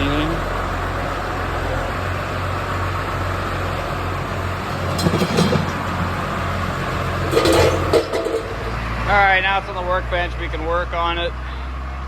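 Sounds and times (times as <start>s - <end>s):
loader engine running: 0.0s - 12.0s.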